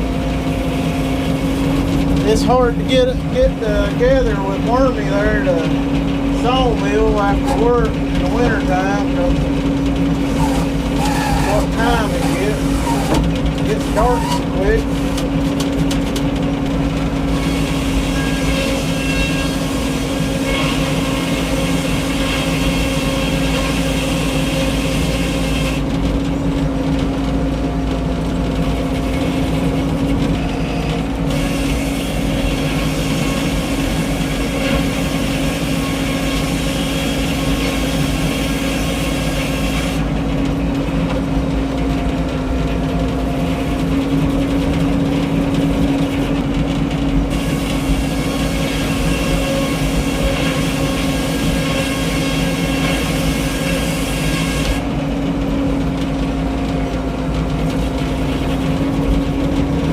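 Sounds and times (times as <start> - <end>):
sawmill drone: 0.0 - 59.9
high saw whine: 10.2 - 15.2, 17.3 - 25.8, 29.1 - 40.1, 47.3 - 54.9.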